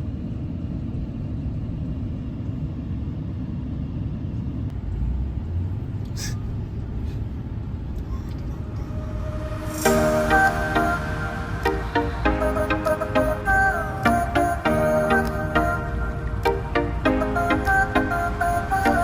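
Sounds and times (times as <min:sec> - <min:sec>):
vehicle rumbling on road: 0:00.3 - 0:09.9.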